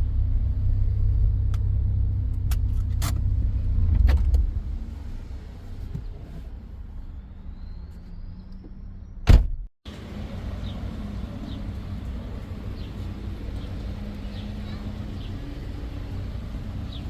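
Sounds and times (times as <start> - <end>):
car low steady hum: 0.0 - 17.0
loud thump: 9.2 - 9.7.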